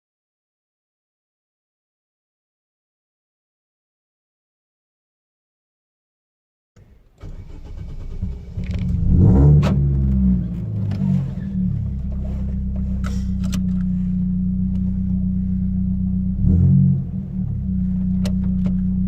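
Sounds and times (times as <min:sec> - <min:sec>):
car engine revving and idling: 0:07.2 - 0:19.0.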